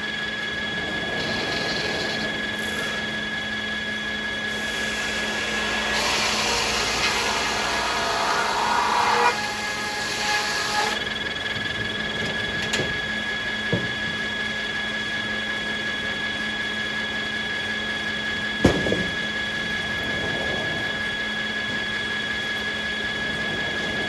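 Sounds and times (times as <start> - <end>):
saw blade high whine: 0.0 - 23.8
mill machinery hum: 0.0 - 24.0
circular saw cutting wood: 0.8 - 15.3
knocks: 12.2 - 14.5, 18.6 - 19.4.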